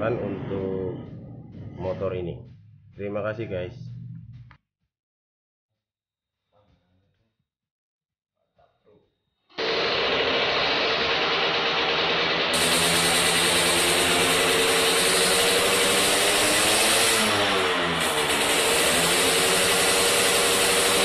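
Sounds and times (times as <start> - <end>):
two-stroke engine running: 9.6 - 21.0.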